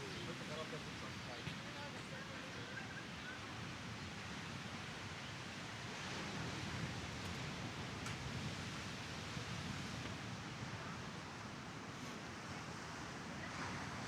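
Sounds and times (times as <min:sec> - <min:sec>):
small waves washing onto beach: 0:03.6 - 0:14.0.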